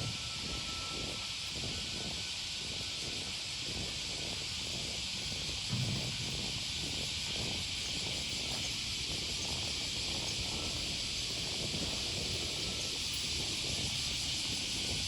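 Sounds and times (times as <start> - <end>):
cicadas buzzing: 0.1 - 15.0.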